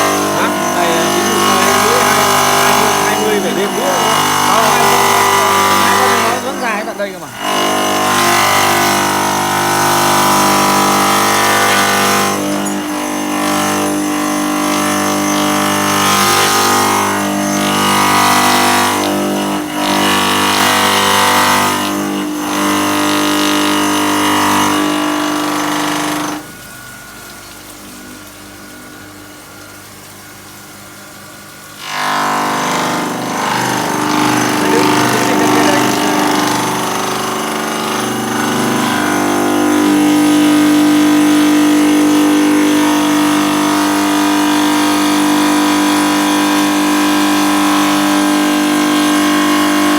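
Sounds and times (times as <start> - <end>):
stone cutting machine humming: 0.0 - 49.9.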